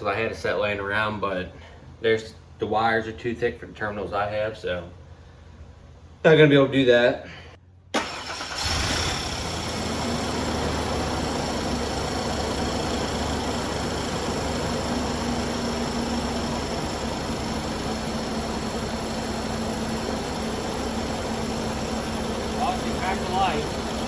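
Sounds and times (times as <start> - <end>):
car engine idling: 8.0 - 24.0.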